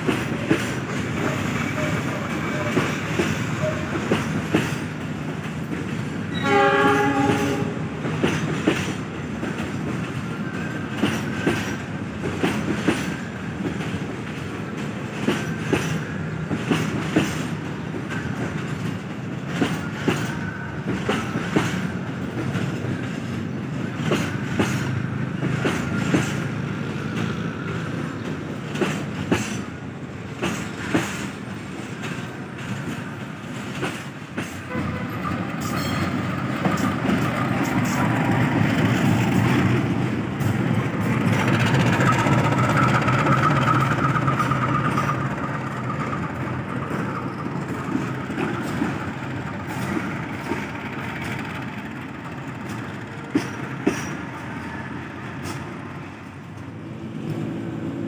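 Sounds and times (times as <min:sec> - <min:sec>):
wheels clacking over rail joints: 0:00.0 - 0:57.4
train cars rumbling: 0:00.0 - 0:58.0
train horn: 0:06.3 - 0:08.1, 0:34.7 - 0:36.0.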